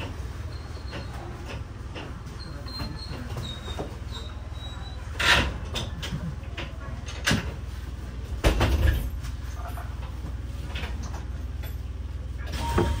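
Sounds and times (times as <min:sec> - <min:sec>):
short beep: 0:12.6 - 0:13.0.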